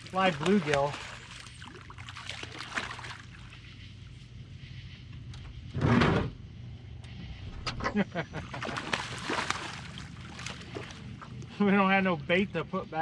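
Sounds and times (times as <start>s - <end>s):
water sloshing and trickling: 0.0s - 4.4s, 8.3s - 11.6s
steady low hum: 0.0s - 13.0s.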